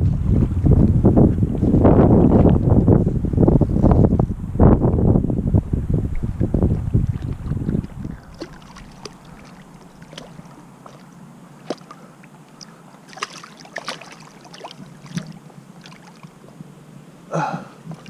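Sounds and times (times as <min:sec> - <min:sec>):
stream water running: 0:05.6 - 0:18.0.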